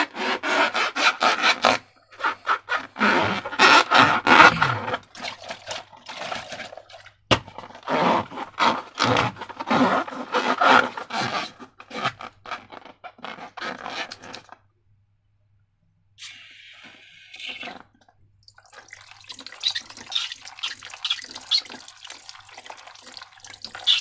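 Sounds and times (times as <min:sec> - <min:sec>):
balloons and slime squeezed: 0:00.0 - 0:05.5, 0:16.2 - 0:17.8, 0:18.9 - 0:24.0.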